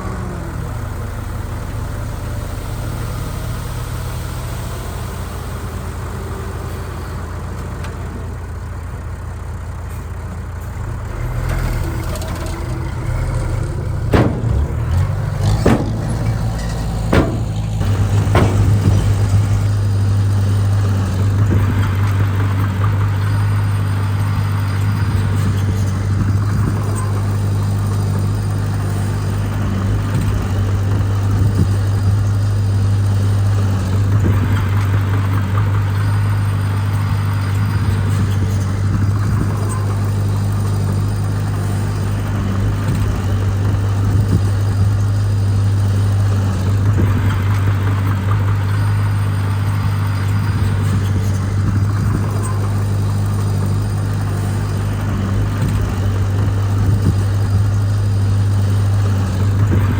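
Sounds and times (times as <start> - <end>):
heavy diesel engine running: 0.0 - 59.9
sharp knocks: 14.1 - 20.7.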